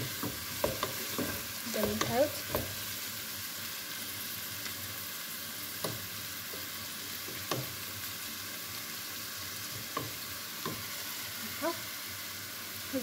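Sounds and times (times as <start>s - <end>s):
wooden spoon knocking pan: 0.0s - 2.8s
meat and onions sizzling: 0.0s - 13.0s.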